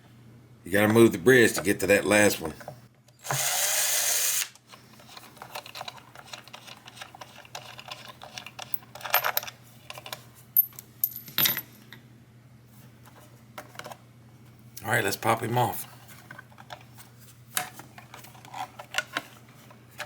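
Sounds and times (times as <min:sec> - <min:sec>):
power screwdriver whirring: 0:03.2 - 0:04.6.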